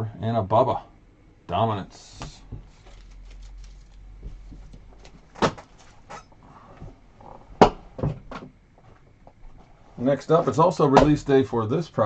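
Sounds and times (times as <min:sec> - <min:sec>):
trading cards and boxes handled: 0:02.1 - 0:06.3.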